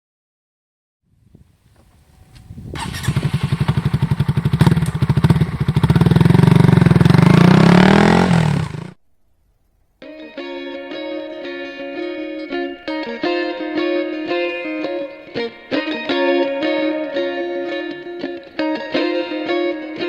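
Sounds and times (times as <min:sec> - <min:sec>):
motorcycle engine revving: 0:02.4 - 0:09.0.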